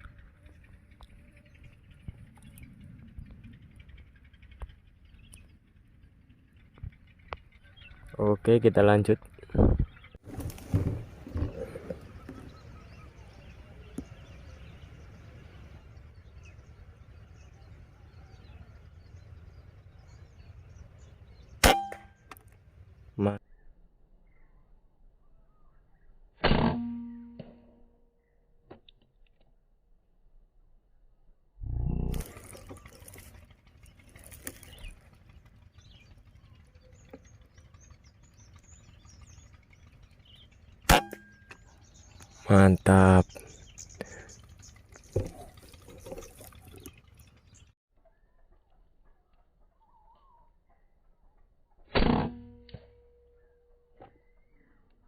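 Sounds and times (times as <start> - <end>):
faint bird chirps: 0.0 - 8.8, 35.7 - 51.5, 53.0 - 55.0
air rifle shot: 21.6 - 22.1, 26.4 - 27.1, 40.9 - 41.3
light patter: 32.2 - 36.4.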